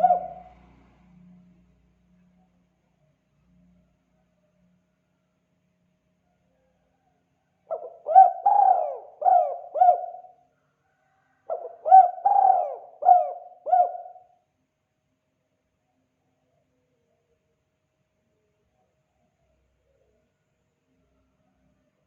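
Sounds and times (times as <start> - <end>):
dove cooing: 0.0 - 0.6, 7.7 - 10.4, 11.4 - 14.3.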